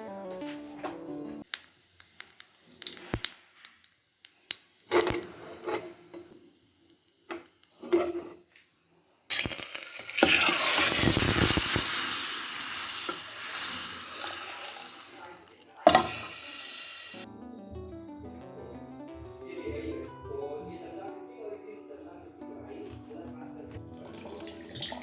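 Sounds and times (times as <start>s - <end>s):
water rushing from a tap: 9.3s - 17.2s, 24.1s - 25.0s
utensils clattering: 14.2s - 16.6s.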